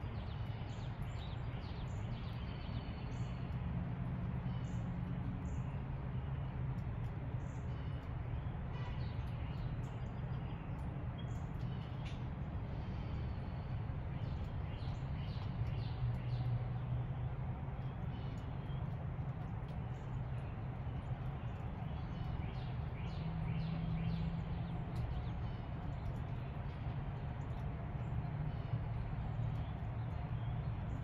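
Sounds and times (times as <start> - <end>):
birds chirping: 7.4 - 31.0.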